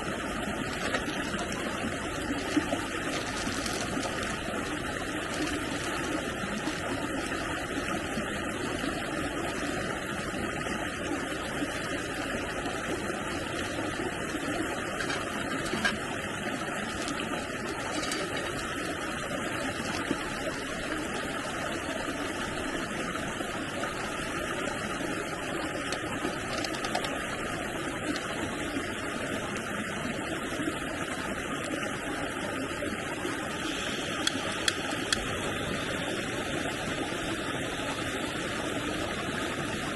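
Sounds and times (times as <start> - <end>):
stream water rushing: 0.0 - 39.9
faint clicks: 25.9 - 27.2, 34.1 - 35.3.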